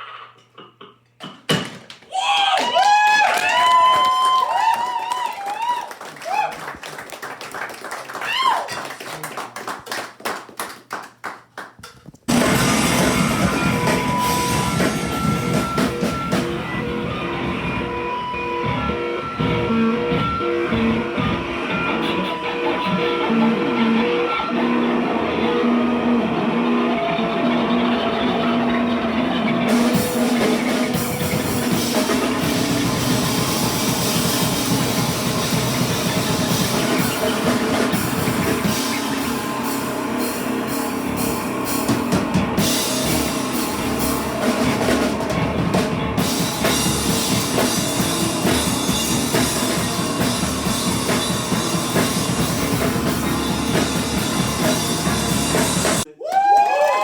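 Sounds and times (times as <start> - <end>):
drum kit pounding: 11.8 - 56.1
live rock band playing: 12.3 - 56.1.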